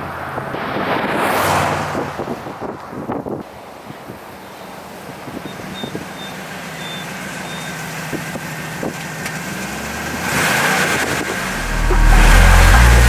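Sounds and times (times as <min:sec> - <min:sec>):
car engine running: 0:10.8 - 0:13.0
loud music: 0:11.4 - 0:13.0.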